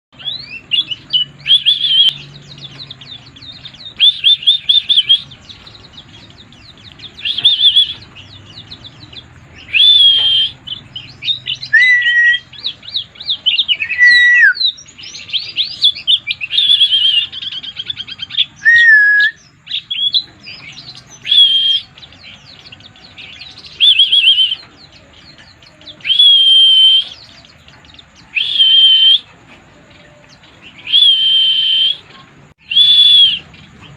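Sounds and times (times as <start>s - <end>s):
bird singing trilling bursts: 0.1s - 33.9s
bird sliding whistled notes: 9.7s - 10.6s, 11.6s - 12.5s, 18.6s - 19.4s, 21.2s - 21.9s, 28.3s - 29.3s, 30.8s - 33.5s.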